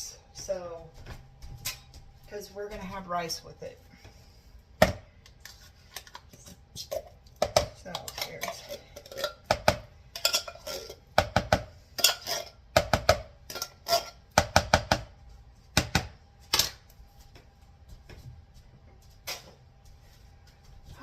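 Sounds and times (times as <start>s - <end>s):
spoon clinking on kitchenware: 10.2s - 11.0s.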